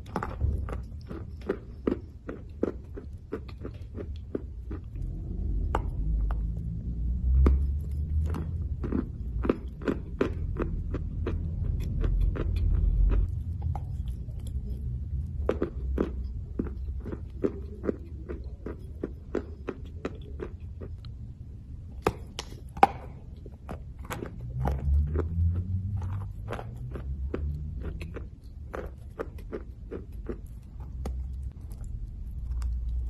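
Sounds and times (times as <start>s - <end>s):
dry crunchy chewing: 0.0s - 21.2s, 21.9s - 33.0s
low rumble: 4.1s - 33.0s.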